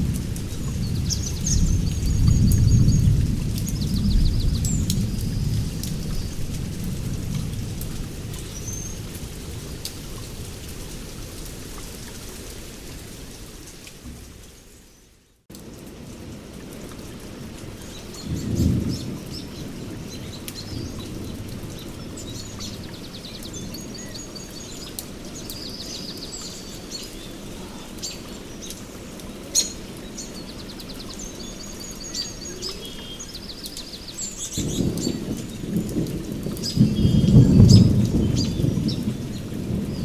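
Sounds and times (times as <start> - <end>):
rolling thunder: 0.0 - 11.2, 18.2 - 24.0, 34.4 - 40.0
steady rain: 0.0 - 40.0
birds chirping and trilling: 0.4 - 6.5, 17.8 - 40.0.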